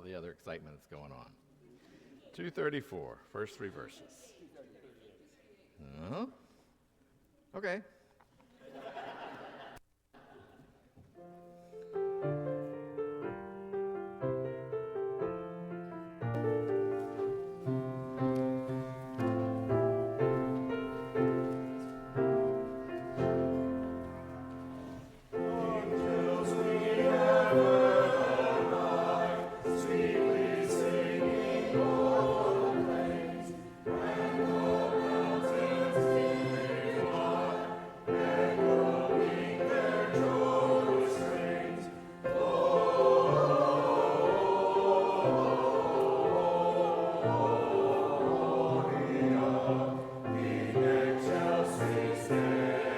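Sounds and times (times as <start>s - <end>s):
piano playing: 11.2s - 52.9s
congregation singing a carol: 16.4s - 52.9s.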